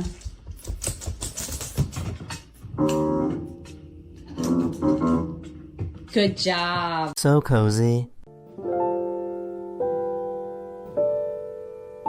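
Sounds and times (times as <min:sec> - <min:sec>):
irregular clicking and knocking: 0:00.0 - 0:07.2
keyboard notes: 0:02.8 - 0:06.4.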